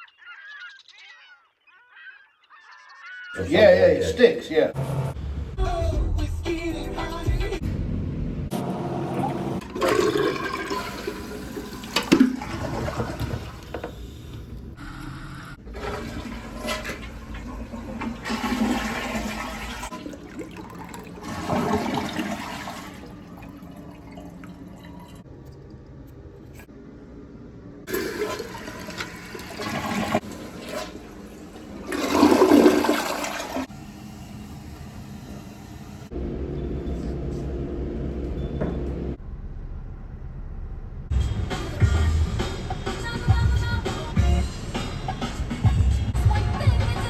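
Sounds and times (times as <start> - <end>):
toilet flushing: 3.4 - 5.1, 8.5 - 14.8, 15.6 - 25.7, 27.9 - 37.5.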